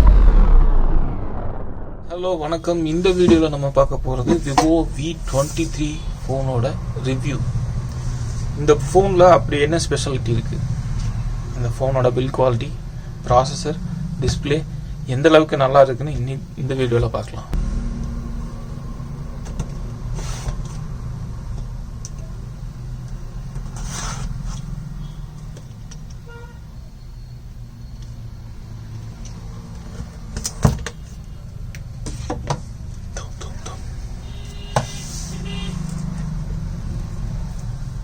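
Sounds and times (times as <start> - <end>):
steady low rumble: 0.0 - 5.7.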